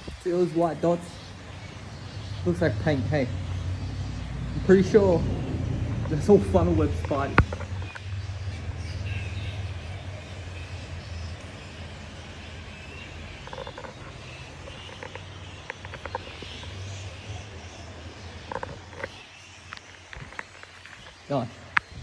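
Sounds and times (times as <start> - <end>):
steady low rumble: 0.0 - 14.8
chirping animal calls: 0.1 - 22.0.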